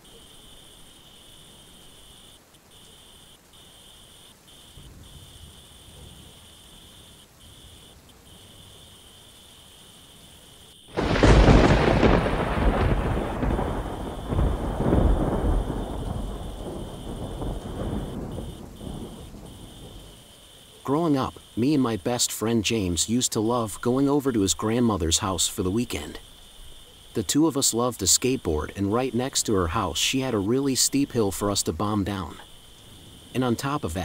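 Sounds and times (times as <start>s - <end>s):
faint insect trill: 0.0s - 34.0s
steady light rain: 0.0s - 34.0s
thunderclap with rolling rumble: 10.9s - 20.3s.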